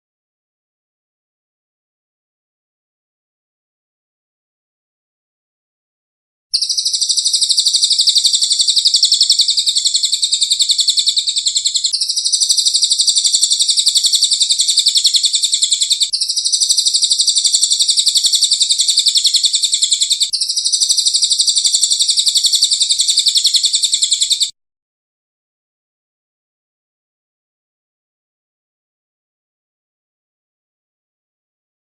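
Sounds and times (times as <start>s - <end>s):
high rapid bird trill: 6.5s - 24.5s.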